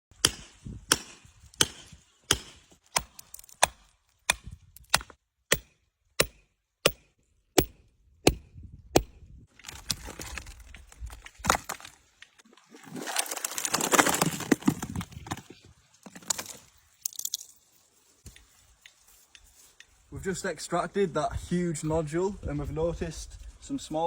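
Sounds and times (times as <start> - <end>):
hammer striking rock: 0.2 - 9.2.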